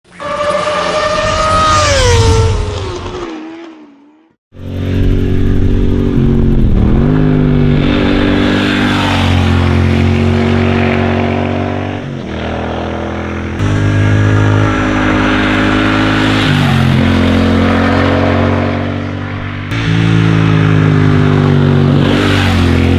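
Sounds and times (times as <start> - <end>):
motorcycle engine running: 4.5 - 22.9.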